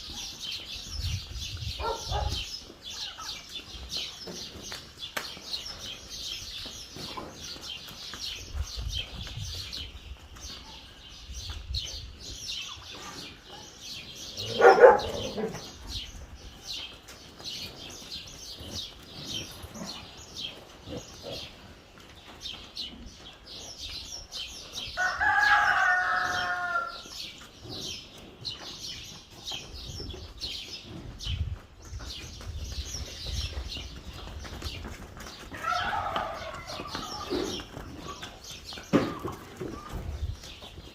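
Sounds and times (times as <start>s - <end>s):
small birds chirping: 0.0s - 40.9s
rooster crowing: 25.0s - 27.0s.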